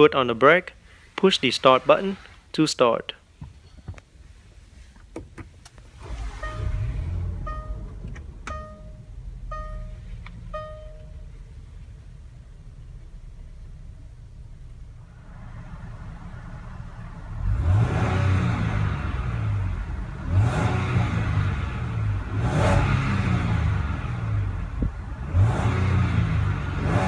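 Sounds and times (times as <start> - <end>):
suv engine idling and revving: 5.8 - 27.0.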